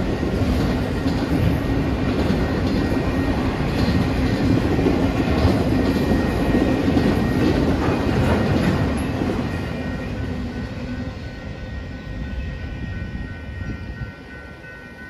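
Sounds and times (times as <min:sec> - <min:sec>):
freight train wheels clacking: 0:00.0 - 0:12.3
crossing signal bell ringing: 0:00.0 - 0:15.0.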